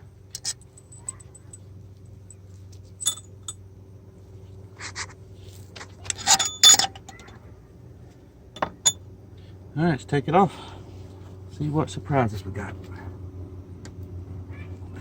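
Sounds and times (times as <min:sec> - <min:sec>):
metal tools clinking: 0:00.3 - 0:03.6, 0:06.0 - 0:07.4, 0:08.6 - 0:09.0.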